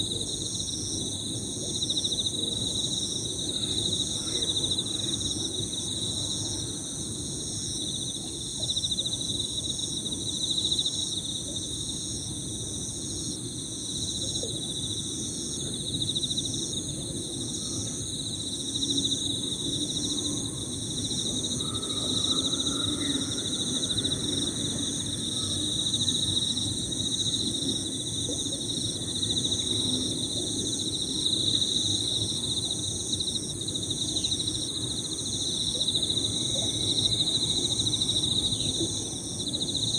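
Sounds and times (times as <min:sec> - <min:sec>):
crickets trilling: 0:00.0 - 0:39.9
insects singing: 0:18.8 - 0:39.9.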